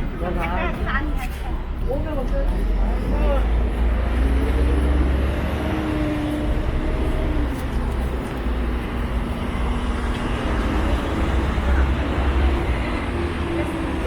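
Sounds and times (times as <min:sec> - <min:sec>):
subway train rumbling: 0:00.0 - 0:14.0.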